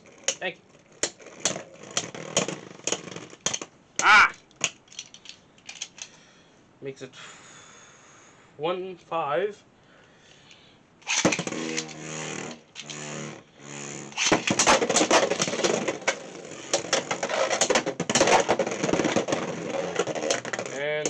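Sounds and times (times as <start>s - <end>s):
launcher whirring pulls: 11.0s - 21.0s
spinning tops clattering: 11.0s - 21.0s.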